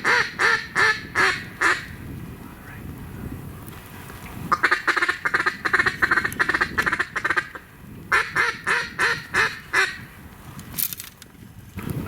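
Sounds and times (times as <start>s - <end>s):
duck quacking: 0.0s - 1.9s, 4.5s - 10.0s.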